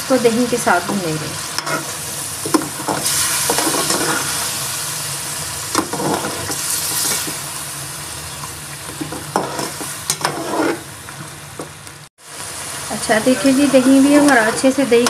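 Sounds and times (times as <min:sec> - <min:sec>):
meat sizzling in a pot: 0:00.0 - 0:15.0
metal spoon scraping and stirring: 0:01.6 - 0:01.9, 0:09.4 - 0:10.9.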